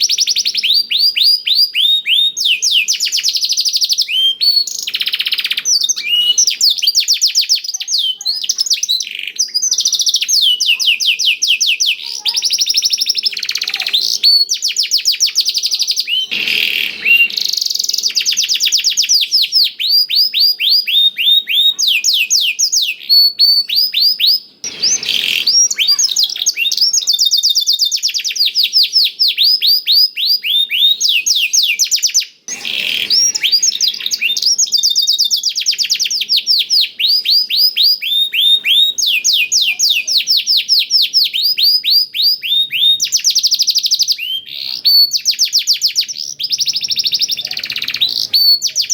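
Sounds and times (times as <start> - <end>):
harsh raspy bird notes: 0.0 - 7.0, 7.6 - 28.1, 30.5 - 45.3, 46.0 - 48.9
canary singing trills: 0.0 - 48.9.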